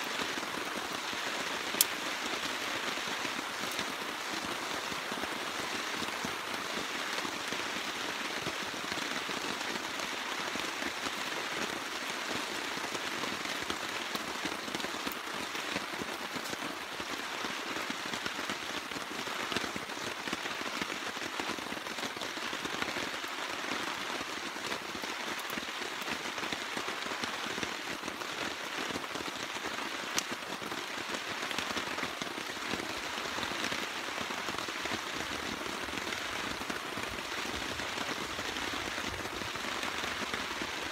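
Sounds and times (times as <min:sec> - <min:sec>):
steady rain hissing: 0:00.0 - 0:40.9.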